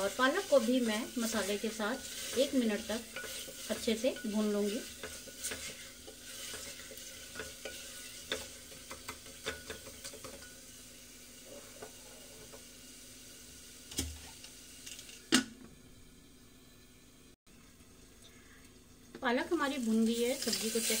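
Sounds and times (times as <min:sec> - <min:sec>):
spatula scraping a pot: 0:00.0 - 0:10.6
food sizzling in a pot: 0:00.0 - 0:21.0.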